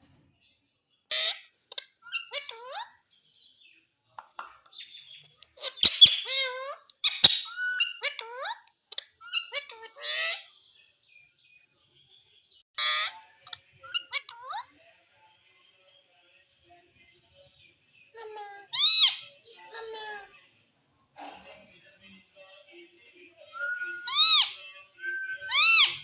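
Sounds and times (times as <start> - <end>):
parakeet harsh screeches: 1.1 - 1.5, 18.7 - 19.3, 24.0 - 24.6, 25.5 - 26.0
parakeet whistled chirps: 23.6 - 26.0.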